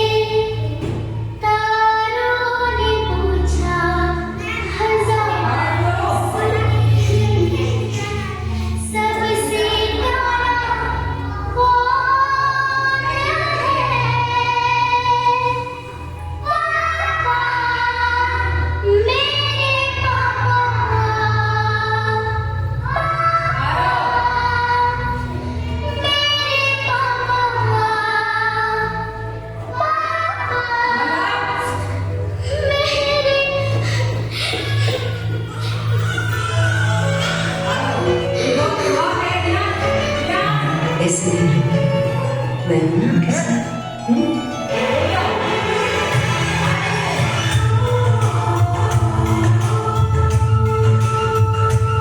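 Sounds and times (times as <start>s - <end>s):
child singing: 0.0s - 41.6s
musical backing: 0.0s - 52.0s.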